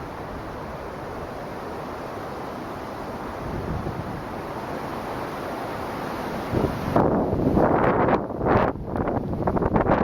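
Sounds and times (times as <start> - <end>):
strong wind blowing: 0.0 - 10.0
wind buffeting microphone: 3.2 - 4.7, 6.4 - 10.0.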